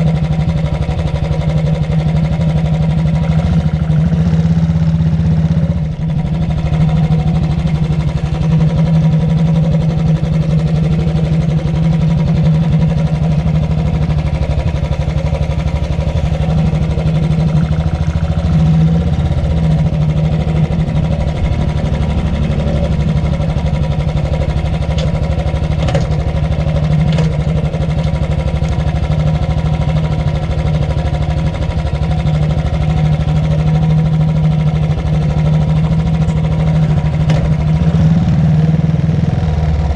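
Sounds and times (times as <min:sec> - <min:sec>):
motorcycle engine thumping: 0:00.3 - 0:32.0, 0:34.0 - 0:38.1.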